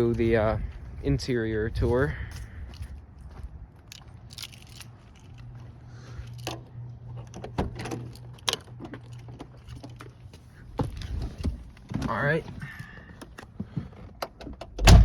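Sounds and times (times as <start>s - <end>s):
keys jangling: 3.9s - 5.6s.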